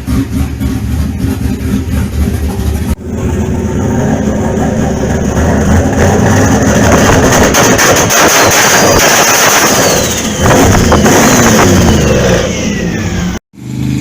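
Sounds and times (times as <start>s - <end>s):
engine idling with low rumble: 0.0s - 7.5s
high steady engine whine: 0.0s - 14.0s.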